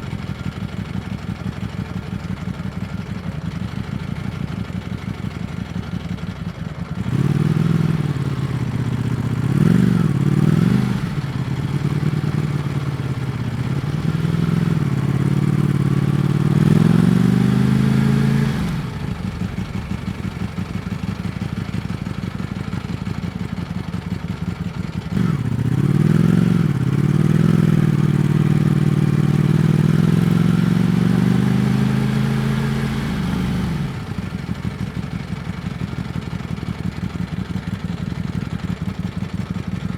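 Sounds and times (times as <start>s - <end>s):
motorcycle engine accelerating: 7.0s - 36.2s.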